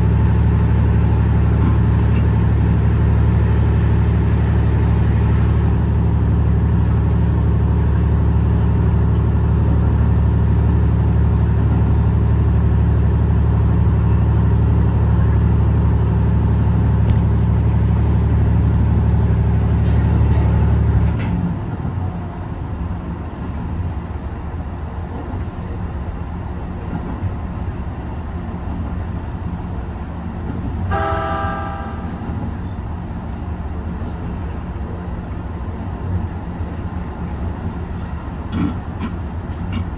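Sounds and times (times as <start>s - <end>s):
diesel train engine drone: 0.0s - 39.9s
train wheels rumbling: 14.6s - 39.9s
train horn toot: 30.9s - 32.5s.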